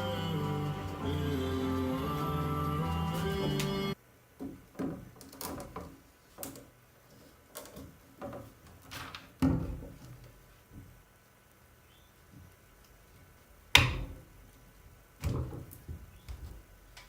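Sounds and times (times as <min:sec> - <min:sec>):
music: 0:00.0 - 0:04.0.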